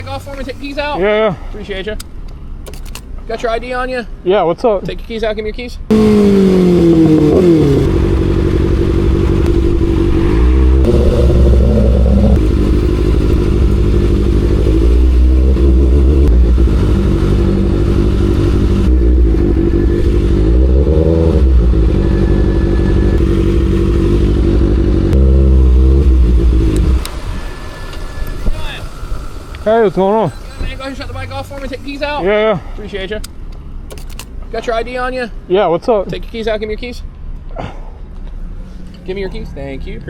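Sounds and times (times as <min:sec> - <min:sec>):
motorcycle engine revving: 0:05.9 - 0:28.3.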